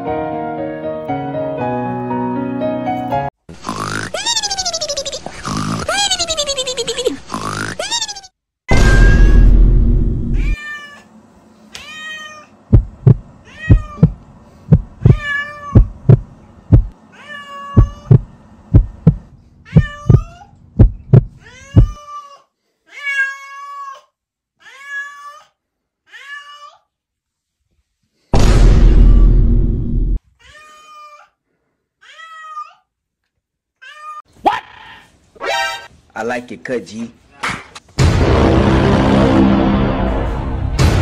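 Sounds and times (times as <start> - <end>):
dull low thumps: 8.7 - 10.5, 12.7 - 17.0, 17.8 - 22.0, 28.4 - 30.2
cat meowing: 10.4 - 11.1, 11.8 - 12.5, 13.5 - 14.1, 15.0 - 15.9, 17.1 - 18.2, 19.7 - 20.5, 21.3 - 25.5, 26.1 - 26.8, 30.4 - 31.3, 32.0 - 32.9, 33.8 - 34.2.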